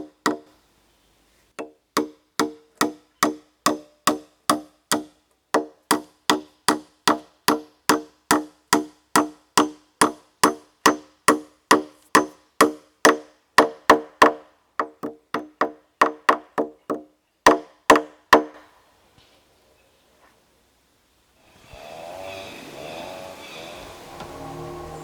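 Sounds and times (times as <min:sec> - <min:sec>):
hollow pitched knocks: 0:00.0 - 0:00.5, 0:01.6 - 0:18.6.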